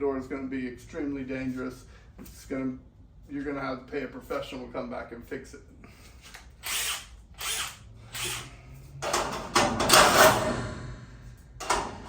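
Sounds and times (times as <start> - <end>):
garage door hardware rattling: 9.0 - 10.8.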